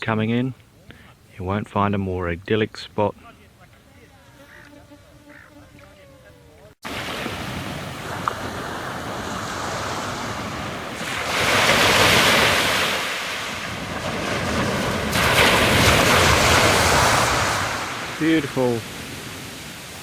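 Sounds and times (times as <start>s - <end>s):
wind: 0.0s - 20.0s
waves washing onto shore: 6.8s - 20.0s.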